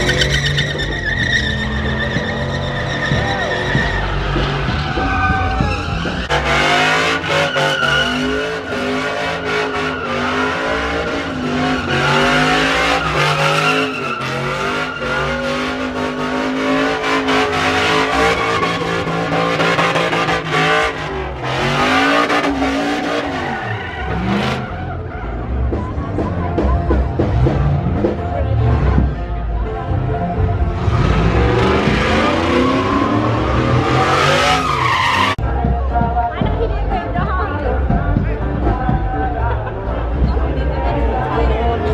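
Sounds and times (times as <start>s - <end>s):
tyres squealing: 0.0s - 25.9s, 31.0s - 35.4s
engine revving high: 5.7s - 24.8s, 30.5s - 35.4s.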